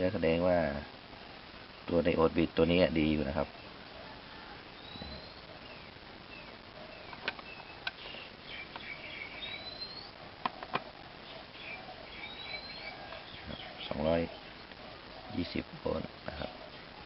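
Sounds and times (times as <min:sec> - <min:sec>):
small birds chirping: 0:01.7 - 0:17.0
rising whistled calls: 0:04.3 - 0:10.2, 0:11.2 - 0:15.4
sharp clicks: 0:07.1 - 0:08.9.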